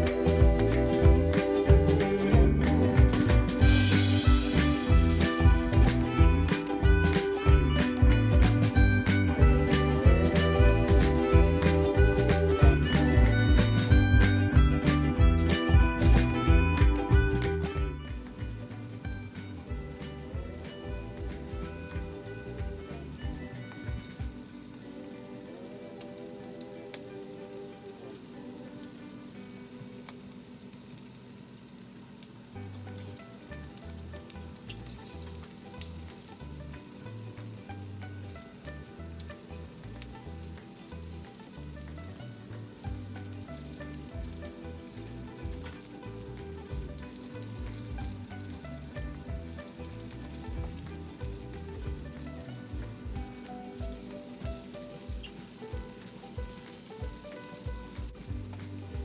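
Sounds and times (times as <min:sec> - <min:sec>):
background music with bass line: 0:00.0 - 0:25.8, 0:33.0 - 0:59.0
chicken deep-frying in oil: 0:18.4 - 0:59.0.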